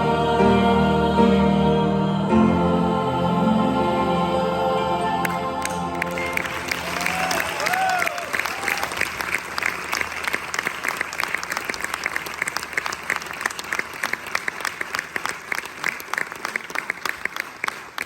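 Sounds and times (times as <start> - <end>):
audience applauding: 5.2 - 18.0.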